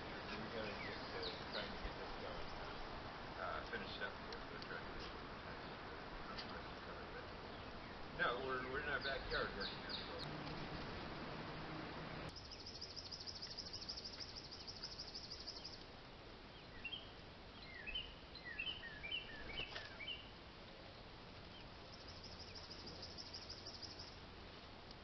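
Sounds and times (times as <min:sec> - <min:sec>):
faint low background noise: 0:00.0 - 0:25.0
falling bird chirps: 0:12.3 - 0:15.8, 0:16.5 - 0:24.2
high-pitched insect trill: 0:12.4 - 0:15.6.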